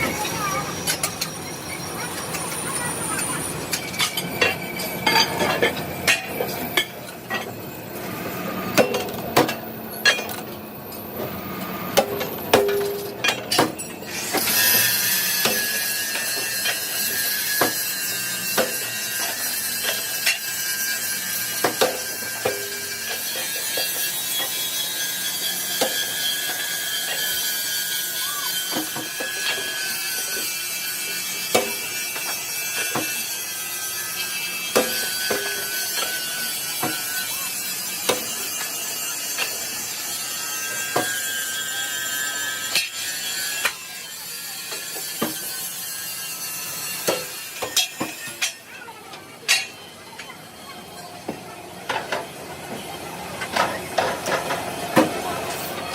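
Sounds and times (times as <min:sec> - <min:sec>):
machine tool whining: 0:00.0 - 0:12.0
steel knocking and clanking: 0:11.9 - 0:14.6, 0:15.3 - 0:27.4, 0:46.9 - 0:48.6, 0:49.5 - 0:49.8
metal clanking on metal: 0:47.0 - 0:48.6, 0:49.5 - 0:49.8.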